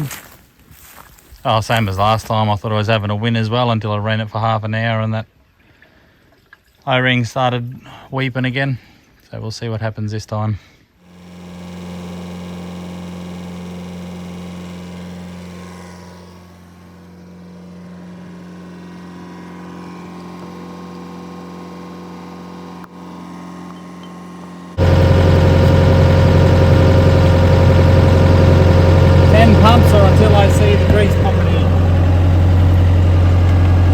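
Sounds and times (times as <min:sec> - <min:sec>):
excavator diesel engine idling: 0:11.3 - 0:33.9
low hum: 0:12.5 - 0:33.9.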